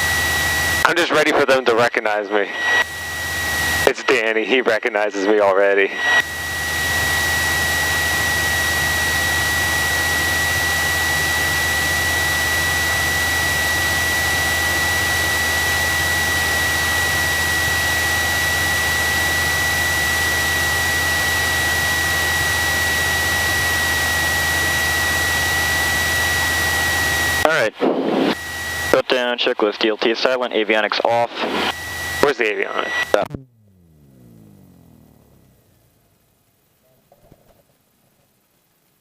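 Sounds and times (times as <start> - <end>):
aircraft engine idling: 0.0 - 27.4, 31.4 - 36.8
constant high whine: 0.0 - 39.0.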